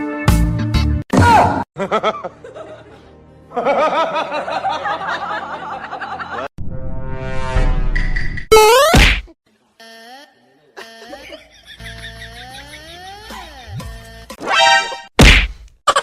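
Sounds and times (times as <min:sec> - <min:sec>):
music: 0:00.0 - 0:06.5
person laughing: 0:10.8 - 0:14.2.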